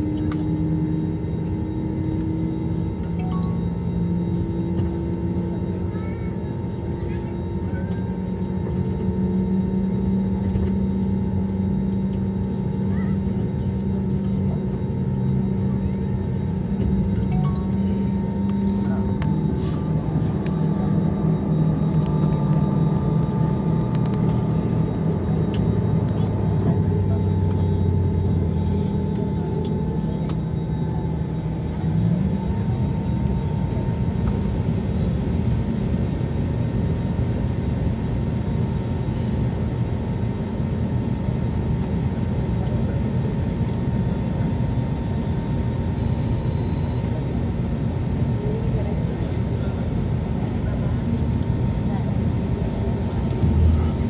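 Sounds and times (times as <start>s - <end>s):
low humming tones shifting pitch: 0.0s - 5.8s, 6.8s - 37.0s, 51.8s - 54.0s
airplane cabin engine hum: 0.0s - 54.0s.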